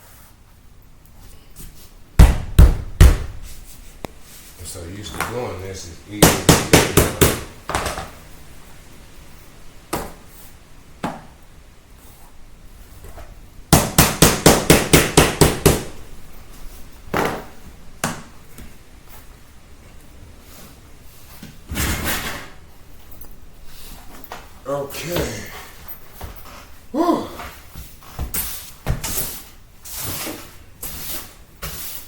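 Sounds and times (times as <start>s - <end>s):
hammer tapping floor tiles: 6.2s - 8.2s.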